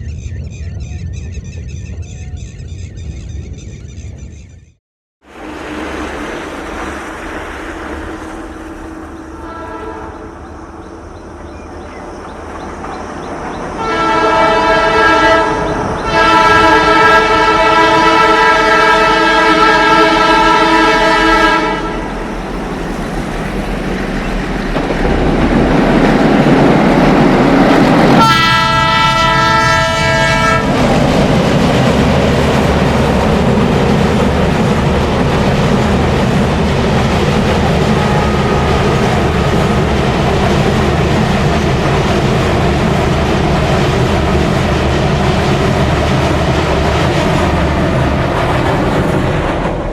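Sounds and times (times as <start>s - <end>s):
train rumbling and clacking past: 5.2s - 49.9s
train horn blasts: 8.1s - 10.4s, 13.8s - 22.2s, 28.2s - 30.8s, 37.9s - 39.4s.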